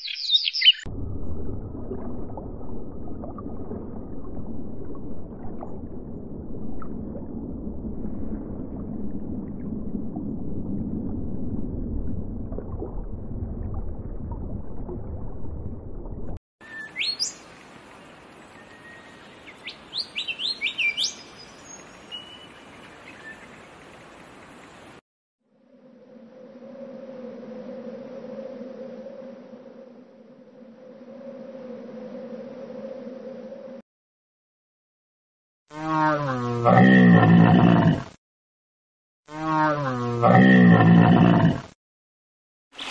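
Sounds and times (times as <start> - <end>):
small bird chirping: 0.0 - 0.9
low steady rumbling: 0.9 - 16.4.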